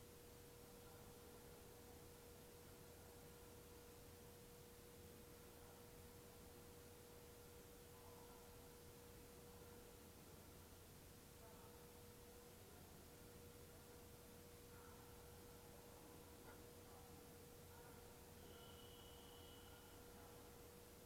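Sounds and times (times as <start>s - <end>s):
faint steady tone: 0.0s - 21.0s
low hiss: 0.0s - 21.0s.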